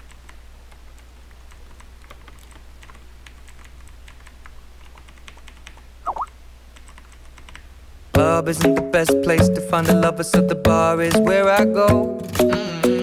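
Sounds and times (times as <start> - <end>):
light typing clicks: 0.0 - 7.7
squeaky sound dipping in pitch: 6.1 - 6.3.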